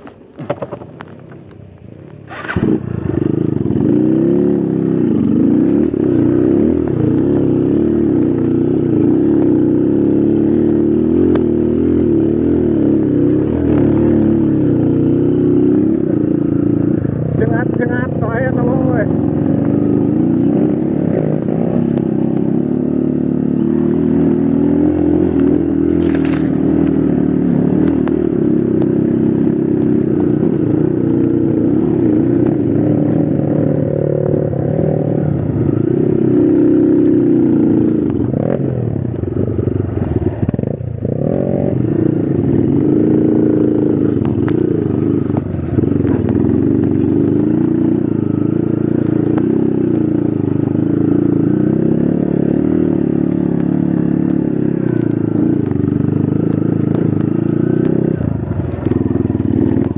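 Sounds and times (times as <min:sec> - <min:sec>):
bike clattering over rough ground: 0:00.0 - 0:01.5
motorcycle engine revving: 0:00.0 - 0:59.9.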